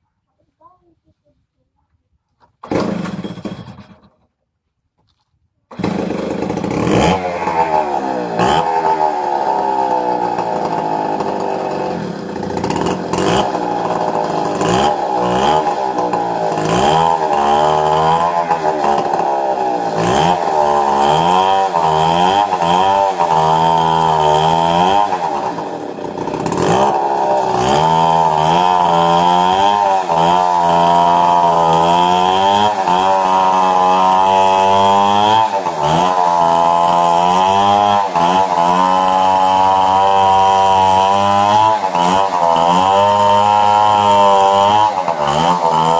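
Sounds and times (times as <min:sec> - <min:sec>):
chainsaw running at high revs: 0:02.7 - 0:03.8, 0:05.7 - 0:45.9.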